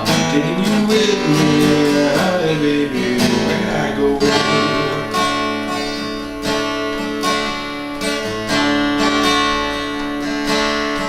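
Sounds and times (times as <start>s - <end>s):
person singing folk song: 0.0s - 6.4s
acoustic guitar strummed chords: 0.0s - 11.0s.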